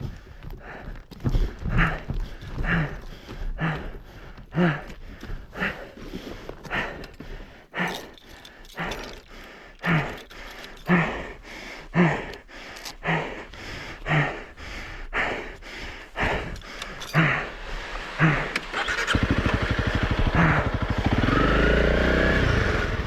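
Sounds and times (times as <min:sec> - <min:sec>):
person breathing heavily: 0:00.0 - 0:21.6
person grunting: 0:10.9 - 0:13.5, 0:16.2 - 0:21.4.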